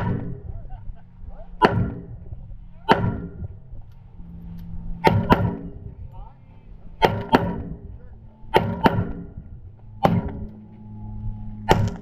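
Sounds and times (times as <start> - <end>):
echoing gunshots: 0.0 - 0.5, 1.6 - 3.7, 4.9 - 6.0, 7.0 - 9.4, 10.0 - 10.6, 11.6 - 12.0.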